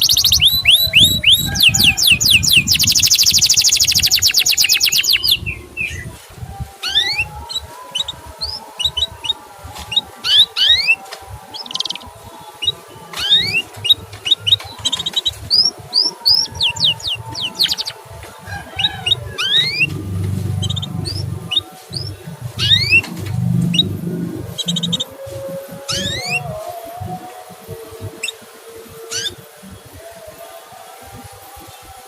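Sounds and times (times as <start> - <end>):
canary chirping and trilling: 0.0 - 6.0, 6.8 - 11.0, 11.6 - 28.4, 29.0 - 29.4
low rumble: 18.5 - 27.3.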